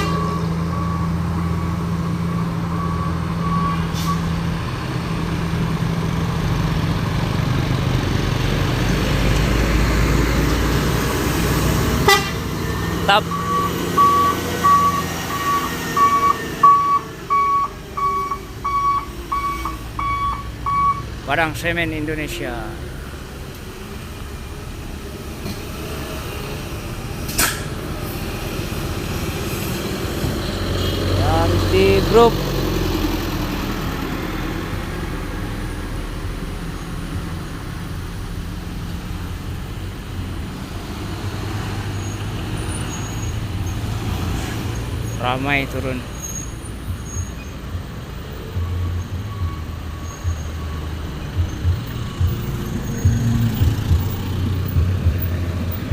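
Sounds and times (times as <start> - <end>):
reversing alarm beeping: 0.0 - 4.3, 12.7 - 21.1, 48.2 - 53.7
traffic noise: 0.0 - 55.9
vehicle engine running low: 0.0 - 55.9.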